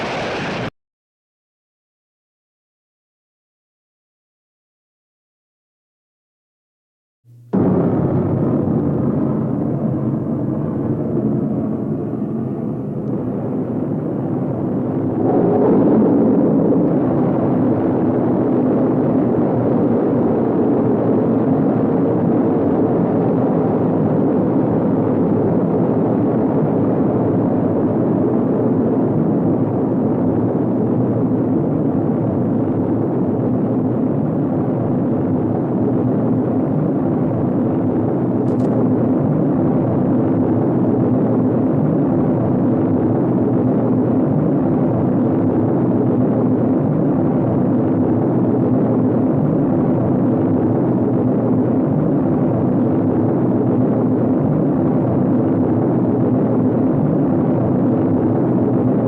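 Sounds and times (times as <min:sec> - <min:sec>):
loud rumbling roar: 0:00.0 - 0:00.7, 0:07.6 - 0:29.6.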